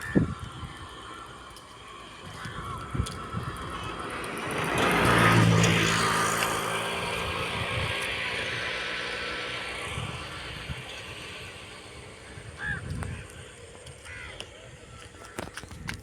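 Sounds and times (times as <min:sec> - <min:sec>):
motor vehicle passing by: 0:00.4 - 0:13.8.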